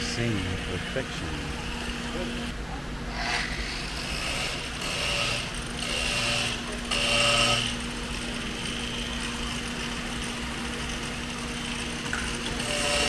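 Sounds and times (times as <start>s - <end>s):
small motor whirring: 0.0s - 13.0s
steady low hum: 0.0s - 13.0s.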